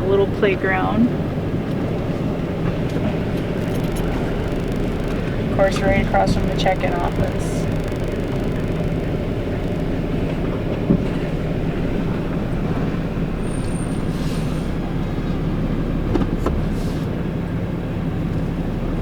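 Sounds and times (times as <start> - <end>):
diesel engine hum inside cab: 0.0 - 19.0.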